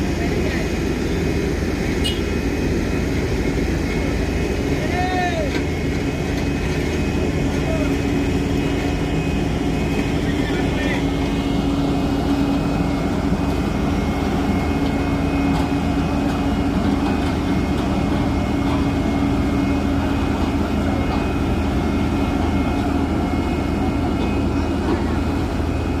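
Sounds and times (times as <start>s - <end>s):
truck diesel engine droning: 0.0s - 26.0s.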